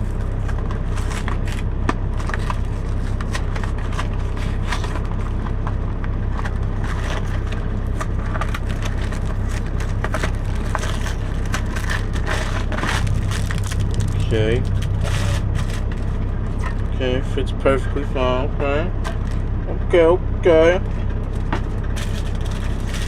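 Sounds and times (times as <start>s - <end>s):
low hum: 0.0s - 23.0s
packaging crinkling: 6.4s - 16.9s, 19.0s - 19.4s, 21.3s - 23.0s.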